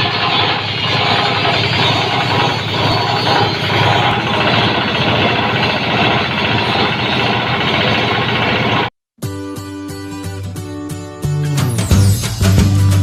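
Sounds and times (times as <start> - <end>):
diesel engine running: 0.0 - 8.9.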